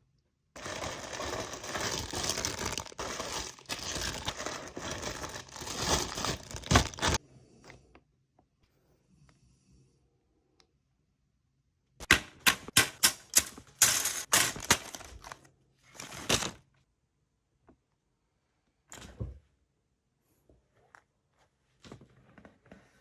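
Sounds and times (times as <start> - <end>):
sharp plastic clicks and knocks: 12.0 - 13.9.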